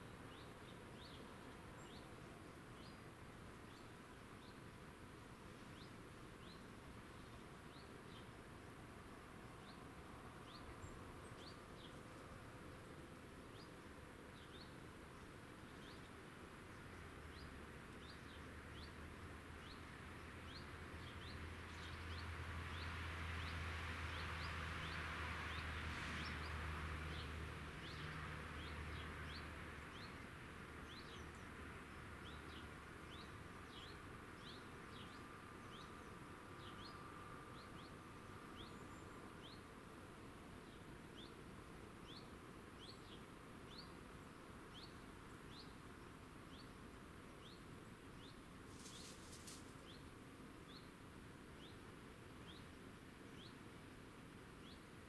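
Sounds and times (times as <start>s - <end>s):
distant engine hum: 0.0s - 55.0s.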